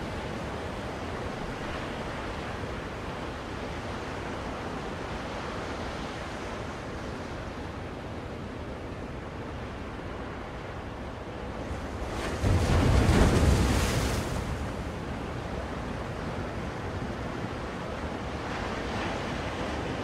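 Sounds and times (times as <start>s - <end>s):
ocean surf rushing: 10.0s - 20.0s.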